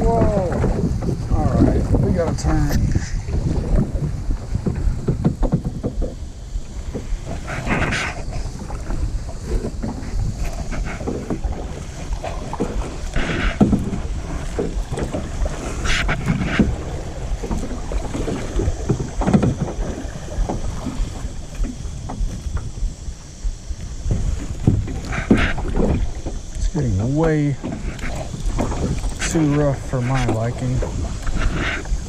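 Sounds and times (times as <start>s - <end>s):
small knocks of water: 0.0s - 6.2s, 9.6s - 22.7s
kayak paddle splashing water: 0.0s - 32.0s
wind rumble on microphone: 0.0s - 32.0s.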